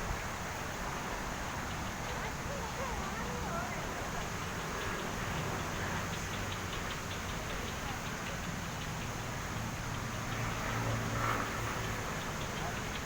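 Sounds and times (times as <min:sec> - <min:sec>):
people's voices: 0:02.0 - 0:08.8.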